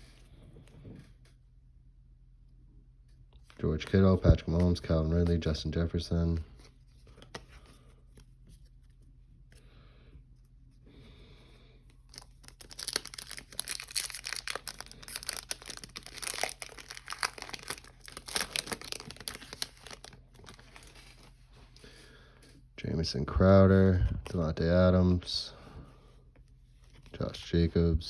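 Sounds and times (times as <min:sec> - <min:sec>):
foil wrapper tearing and crinkling: 0:12.1 - 0:21.0.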